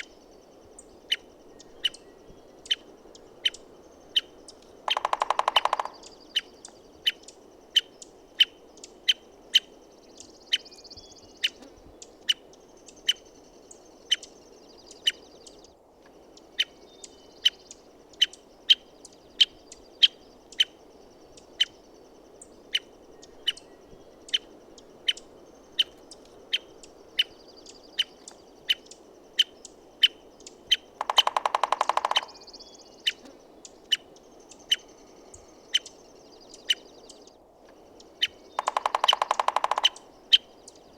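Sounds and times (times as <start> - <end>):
woodpecker call notes: 0.0 - 40.9
woodpecker drumming: 2.6 - 8.5, 22.7 - 37.0, 37.7 - 40.9.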